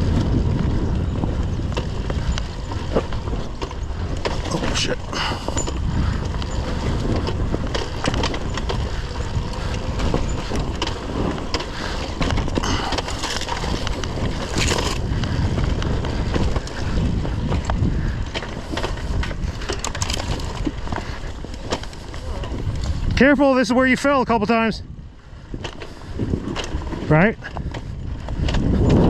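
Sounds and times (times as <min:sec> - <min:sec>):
wind on microphone: 0:00.0 - 0:23.7, 0:24.8 - 0:29.0
dirt bike engine rumble: 0:00.0 - 0:23.8, 0:24.9 - 0:29.0
stones crunching under tyres: 0:01.5 - 0:23.2.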